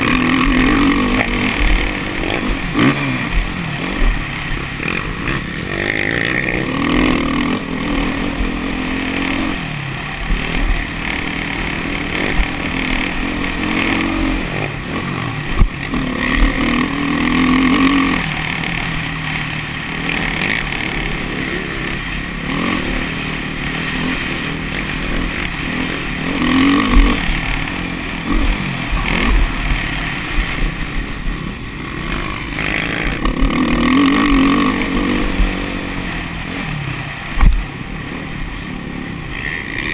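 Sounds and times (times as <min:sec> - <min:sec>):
motocross bike engine revving: 0:00.0 - 0:39.9
wind rumble on microphone: 0:35.0 - 0:37.8.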